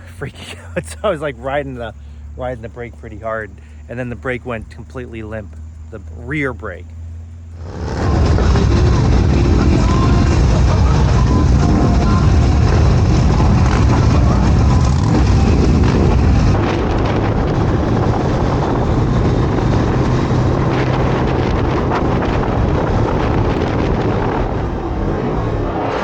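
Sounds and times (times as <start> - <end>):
motorcycle engine running: 0.0 - 26.0
wind noise on microphone: 7.5 - 26.0.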